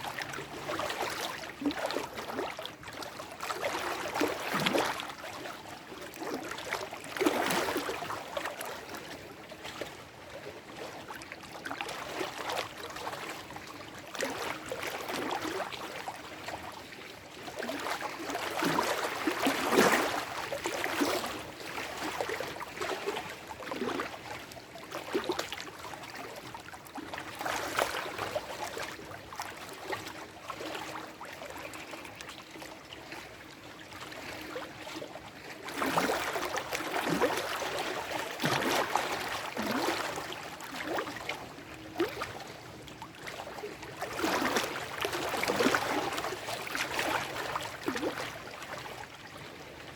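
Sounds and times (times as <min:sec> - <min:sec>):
lake waves lapping on rocks: 0:35.6 - 0:41.3, 0:43.2 - 0:49.0.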